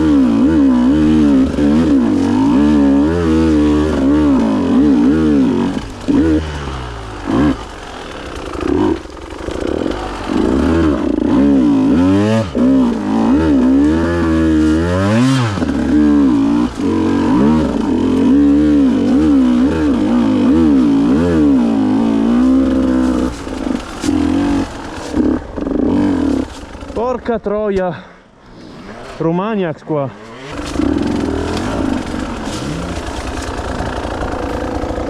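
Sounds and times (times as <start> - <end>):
motorcycle engine revving: 0.0 - 27.6, 28.6 - 35.0.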